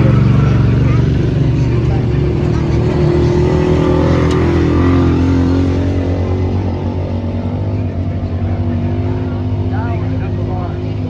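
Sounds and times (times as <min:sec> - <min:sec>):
racing engines at high revs: 0:00.0 - 0:11.0.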